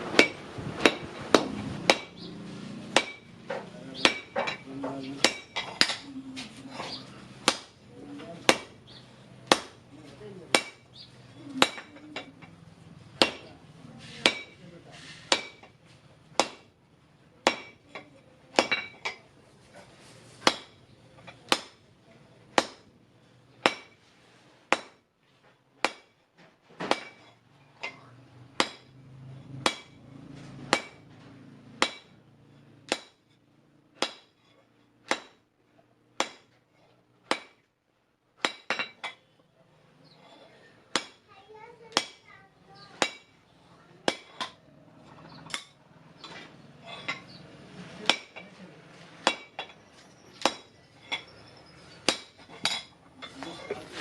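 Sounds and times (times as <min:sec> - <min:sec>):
hammer striking steel on anvil: 0:00.1 - 0:02.3, 0:02.9 - 0:06.1, 0:07.4 - 0:07.7, 0:09.4 - 0:09.8, 0:10.5 - 0:10.9, 0:13.2 - 0:15.8, 0:16.4 - 0:16.7, 0:17.4 - 0:19.2, 0:20.4 - 0:21.8, 0:22.5 - 0:22.9, 0:23.6 - 0:24.0, 0:24.7 - 0:25.0, 0:25.8 - 0:26.2, 0:26.8 - 0:34.4, 0:35.0 - 0:35.4, 0:36.2 - 0:36.6, 0:37.2 - 0:37.7, 0:38.4 - 0:39.2, 0:40.9 - 0:41.3, 0:43.0 - 0:43.4, 0:44.1 - 0:44.6, 0:48.0 - 0:48.4, 0:49.2 - 0:51.3, 0:52.0 - 0:53.5.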